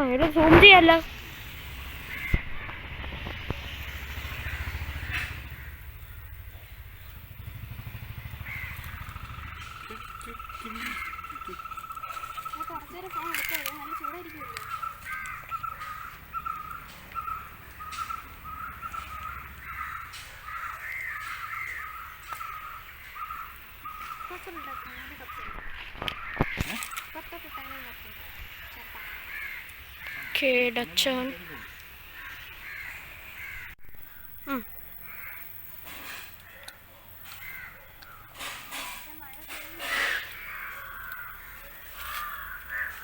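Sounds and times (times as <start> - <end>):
higher warbling bird call: 0.6 - 30.3
crows cawing: 1.4 - 34.3, 34.9 - 43.0.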